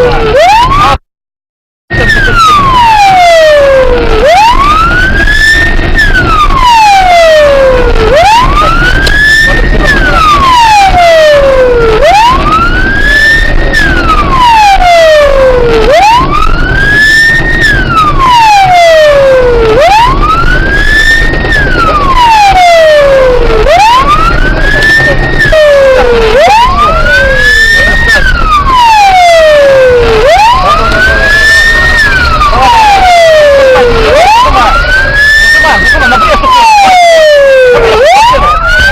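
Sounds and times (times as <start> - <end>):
police siren wailing: 0.0 - 1.0, 1.9 - 38.9
vehicle low rumble: 1.9 - 38.9.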